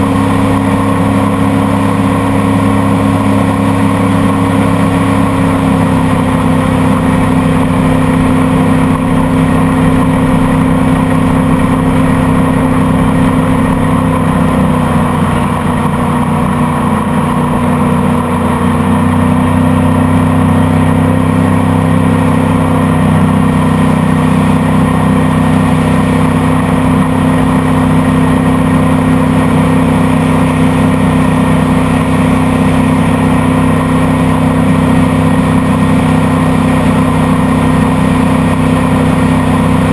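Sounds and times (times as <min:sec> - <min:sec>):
motorboat engine droning: 0:00.0 - 0:39.9.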